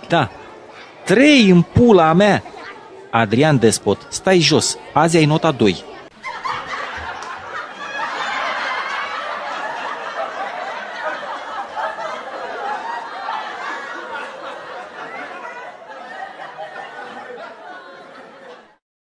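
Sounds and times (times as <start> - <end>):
audience laughter: 6.1 - 18.8.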